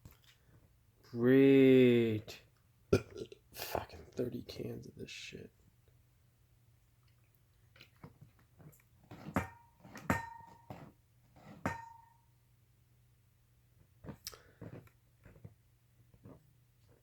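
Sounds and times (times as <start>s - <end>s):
sharp ringing knocks: 9.4s - 10.7s, 11.7s - 12.2s.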